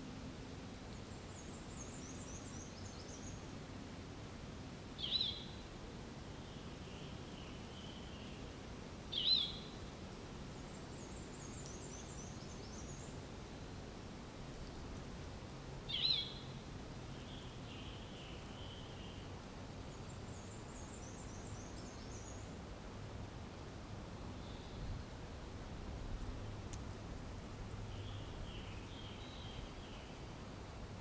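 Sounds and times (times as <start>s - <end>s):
faint steady background rush: 0.0s - 31.0s
songbirds calling: 1.0s - 3.6s, 5.0s - 13.8s, 15.9s - 22.6s, 27.8s - 31.0s.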